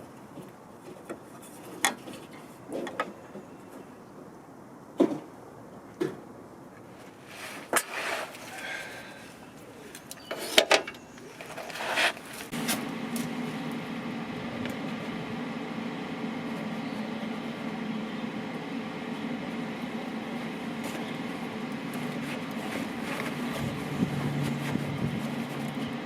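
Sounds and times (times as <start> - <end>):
motor humming: 11.4 - 26.0.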